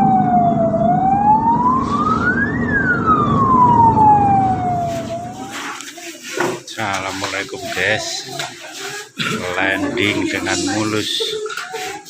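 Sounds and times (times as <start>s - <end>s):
low rumble: 0.0s - 5.5s
ambulance siren wailing: 0.0s - 5.8s.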